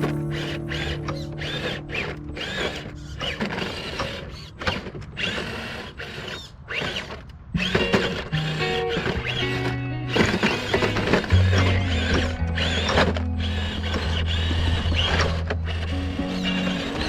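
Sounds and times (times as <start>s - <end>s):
music: 0.0s - 3.9s, 7.6s - 17.0s
rc truck motor and gears whining: 0.0s - 17.0s.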